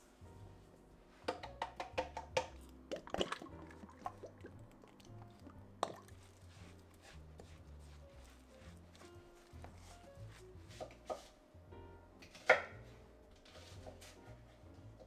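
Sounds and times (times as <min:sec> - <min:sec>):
soft background music: 0:00.0 - 0:15.0
wet clicks and plops: 0:01.3 - 0:06.4.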